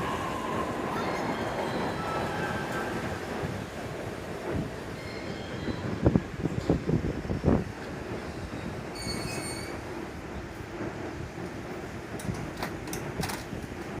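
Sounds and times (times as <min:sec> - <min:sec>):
train wheels rumbling on rails: 0:00.0 - 0:14.0
high-pitched wheel squeal: 0:08.9 - 0:09.8
wheels clacking over rail joints: 0:10.9 - 0:14.0.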